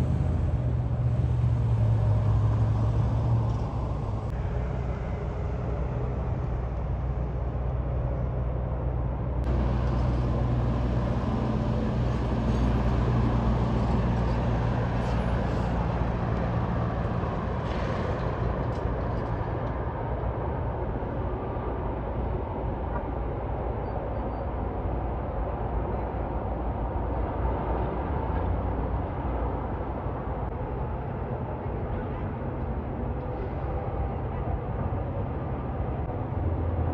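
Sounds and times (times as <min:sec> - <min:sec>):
tyre and road noise: 0:00.0 - 0:36.9
vehicle engine drone: 0:00.0 - 0:36.9.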